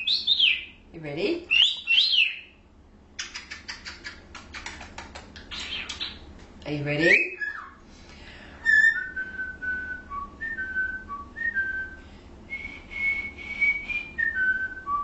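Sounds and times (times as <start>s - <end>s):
cockatiel whistling a tune: 7.0s - 7.8s, 8.6s - 12.0s, 12.6s - 15.0s.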